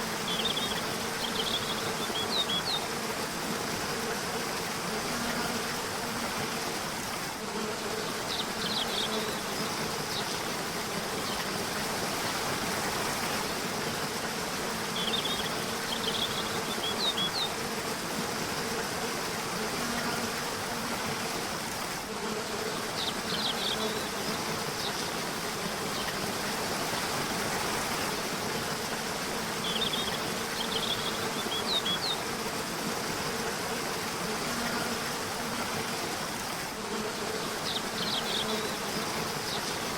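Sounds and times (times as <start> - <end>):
river water rushing: 24.1 - 36.8.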